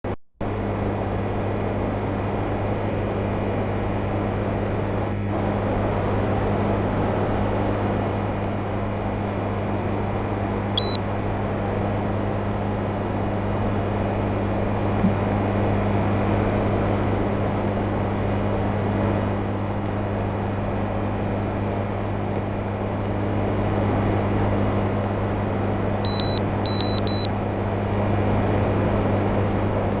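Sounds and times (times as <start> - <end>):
fan rushing: 0.5 - 30.0
air conditioner humming: 9.2 - 11.9, 23.2 - 29.4
short electronic beeps: 10.8 - 11.0, 26.1 - 27.3.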